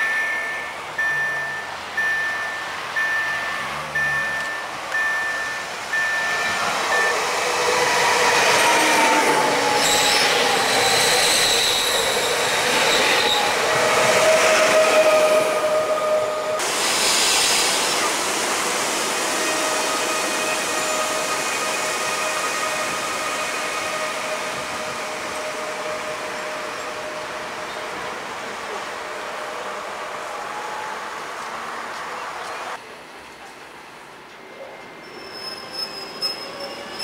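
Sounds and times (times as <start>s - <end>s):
level crossing bell dinging: 0.0s - 7.3s
train wheels rumbling: 0.0s - 32.8s
electric train whine: 0.0s - 33.2s.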